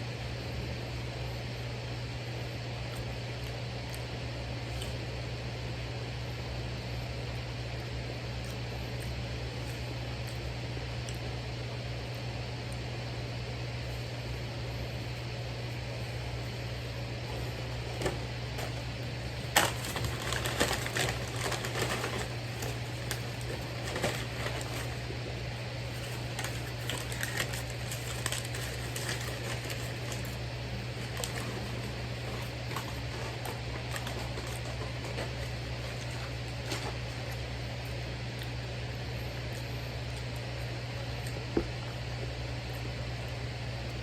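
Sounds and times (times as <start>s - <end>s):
fan humming: 0.0s - 44.0s
crackly rustling: 13.8s - 42.0s.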